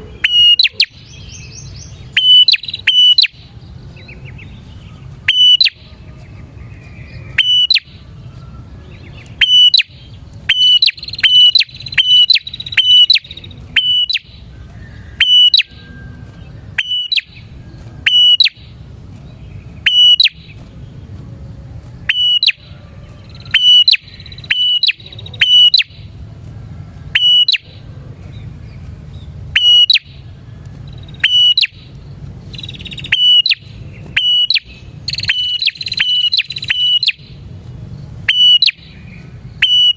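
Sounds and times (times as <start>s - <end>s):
faint bird calls: 0.0s - 18.8s, 19.7s - 26.2s, 26.9s - 37.4s, 38.2s - 39.9s
bird calling sharp notes: 0.0s - 21.2s, 21.9s - 26.2s, 27.0s - 39.9s
steady low hum: 0.0s - 39.9s.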